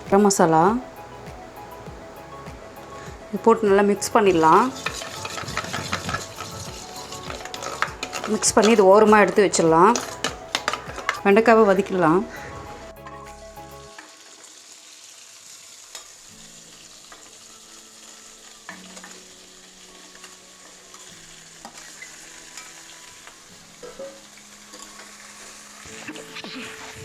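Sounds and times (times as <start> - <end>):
okra sizzling in a pan: 0.0 - 27.0
stirring knocks: 4.3 - 12.1.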